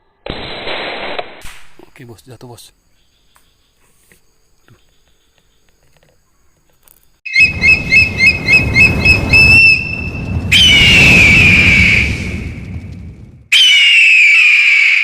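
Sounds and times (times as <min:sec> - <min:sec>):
long falling whistle: 0:07.3 - 0:12.6, 0:13.5 - 0:15.0
rumbling noise: 0:07.4 - 0:13.5.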